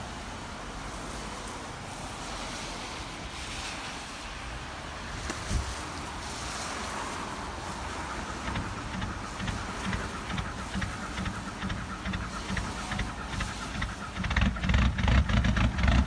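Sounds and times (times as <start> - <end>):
wind buffeting microphone: 5.0 - 16.0
diesel car engine clattering: 7.2 - 16.0.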